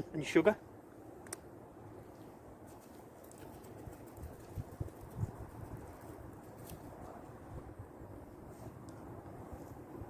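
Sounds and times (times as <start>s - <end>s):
faint click: 1.2s - 1.4s
wind buffeting microphone: 1.5s - 10.0s.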